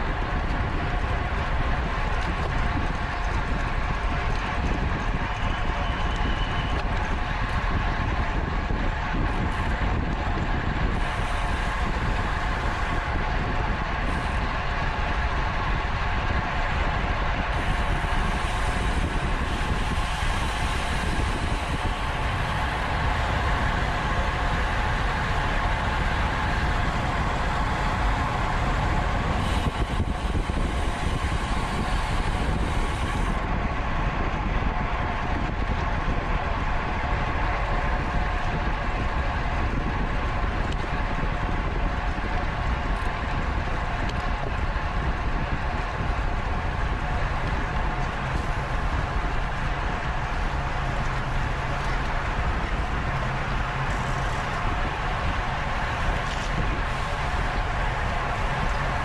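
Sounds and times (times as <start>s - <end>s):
bicycle tyres and drivetrain whir: 0.0s - 59.0s
wind rushing on microphone: 0.0s - 59.0s.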